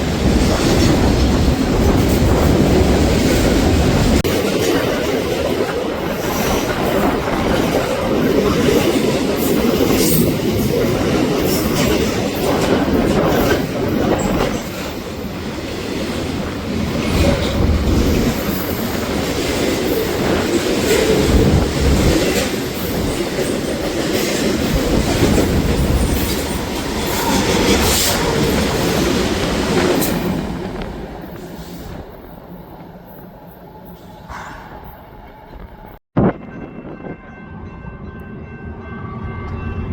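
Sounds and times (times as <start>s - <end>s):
train wheels squealing: 31.4s - 36.0s.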